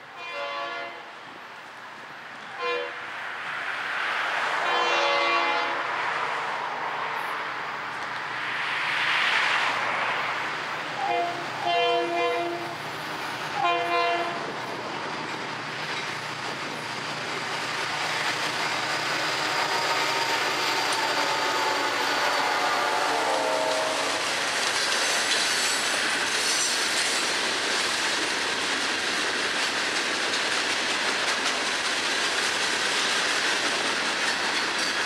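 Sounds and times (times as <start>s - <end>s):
train horn blasts: 0.1s - 1.2s, 2.5s - 3.0s, 4.6s - 5.9s, 11.0s - 12.8s, 13.6s - 14.5s, 19.4s - 24.4s
train wheels clattering on rails: 11.0s - 35.0s.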